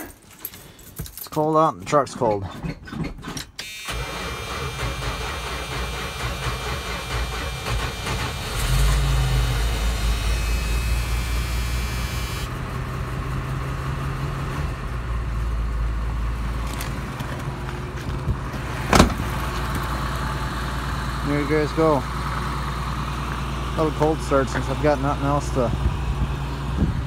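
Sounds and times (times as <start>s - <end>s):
starter cranking engine: 3.9s - 12.5s
pickup engine idling: 4.0s - 14.1s, 14.8s - 27.0s.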